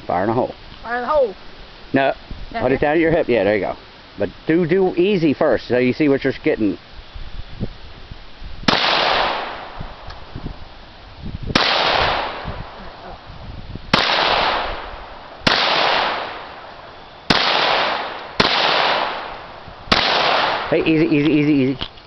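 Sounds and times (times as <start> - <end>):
gunshots with echo: 8.7 - 9.8, 11.6 - 12.5, 13.9 - 16.6, 17.3 - 20.9.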